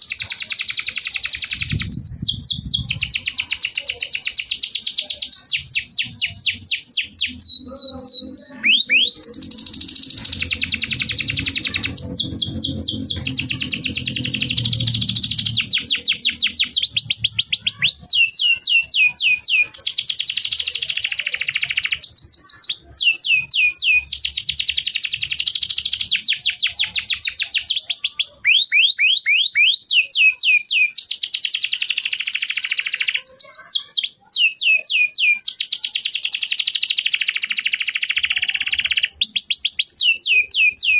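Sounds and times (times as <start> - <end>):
canary singing trills: 0.0 - 40.9
low hum: 10.0 - 15.8.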